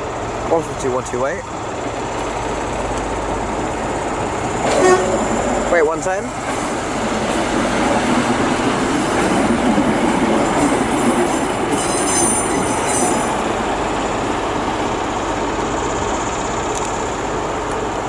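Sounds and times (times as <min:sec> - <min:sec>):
train running: 0:00.0 - 0:18.0
metallic wheel squeal: 0:11.8 - 0:13.3.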